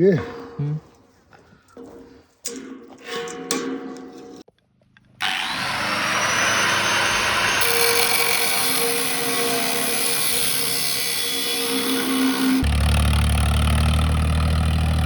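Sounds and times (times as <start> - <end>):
power saw whining: 5.2 - 15.0.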